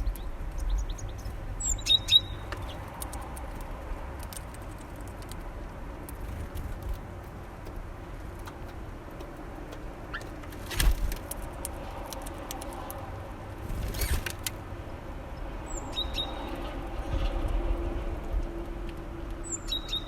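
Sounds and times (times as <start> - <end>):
road traffic rumble: 0.0 - 20.0
sharp clicks: 6.0 - 13.1.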